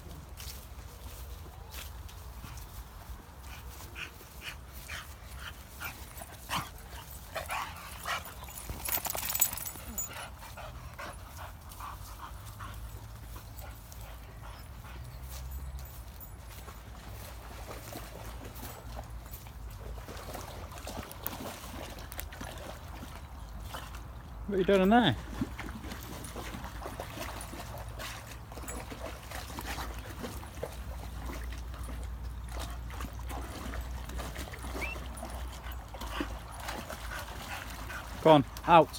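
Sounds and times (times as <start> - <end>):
dog panting: 3.4 - 15.4, 32.6 - 38.9
dog splashing in water: 4.7 - 10.1, 16.6 - 38.9.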